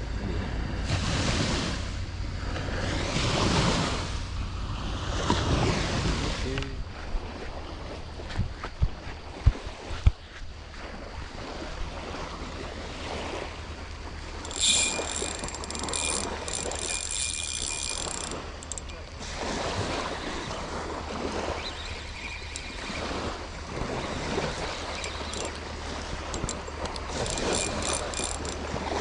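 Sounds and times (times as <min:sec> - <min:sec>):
wind on microphone: 0:00.0 - 0:29.0
surf washing on beach: 0:00.2 - 0:07.9
high whine: 0:13.8 - 0:19.2.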